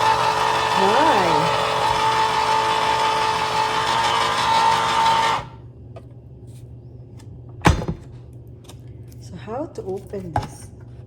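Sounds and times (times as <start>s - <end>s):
small electric motor humming: 0.0s - 5.6s.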